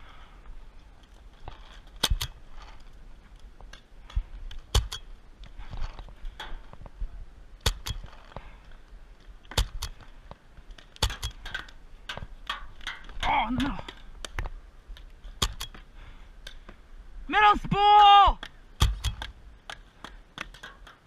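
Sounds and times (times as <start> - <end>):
paintball markers firing: 2.0 - 2.4, 4.6 - 5.0, 7.6 - 8.2, 9.5 - 10.1, 11.0 - 12.2, 15.4 - 15.9, 18.4 - 20.7.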